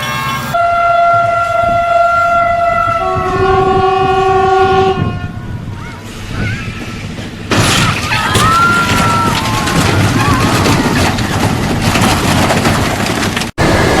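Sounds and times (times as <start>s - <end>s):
train horn chord: 0.0s - 5.4s.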